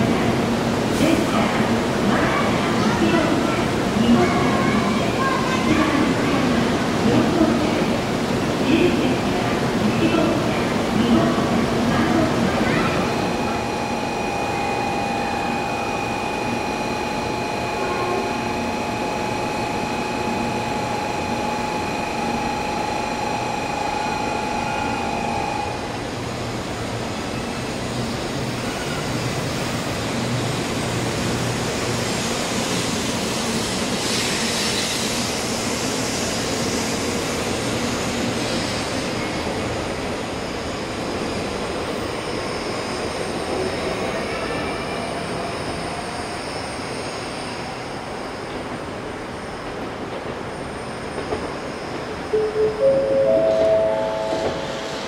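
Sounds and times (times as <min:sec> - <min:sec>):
high-pitched tones: 0:12.8 - 0:25.8, 0:52.3 - 0:55.0.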